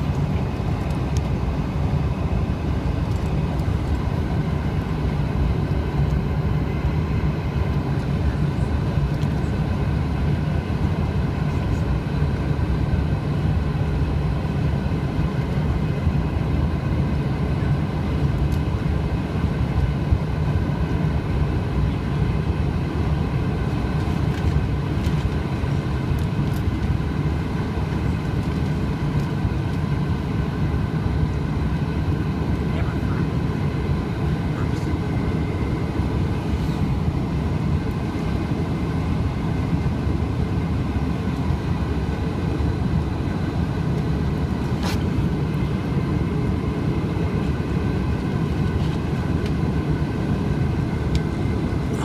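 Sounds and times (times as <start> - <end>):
airplane cabin rumble: 0.0 - 52.0
jet engine whining tones: 22.5 - 52.0.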